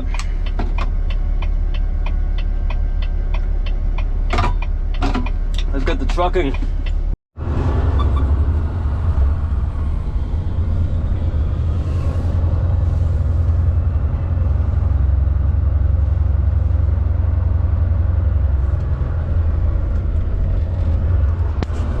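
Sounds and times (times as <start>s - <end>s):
truck engine and road rumble: 0.0s - 22.0s.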